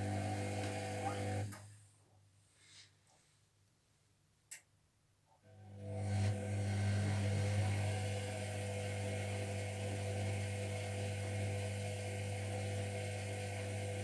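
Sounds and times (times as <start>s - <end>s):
washing machine humming: 0.0s - 1.5s, 5.8s - 14.0s.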